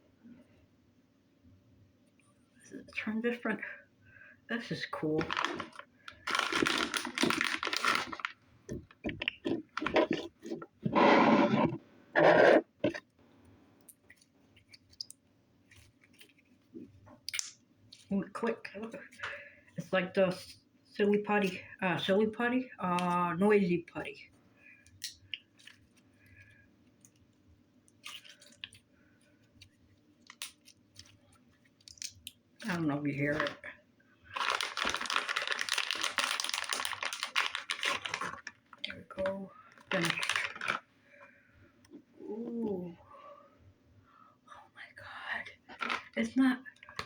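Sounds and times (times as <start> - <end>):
slime squishes: 5.0 - 13.2, 13.8 - 18.1, 24.8 - 40.9
slime squishing by hand: 5.0 - 13.2.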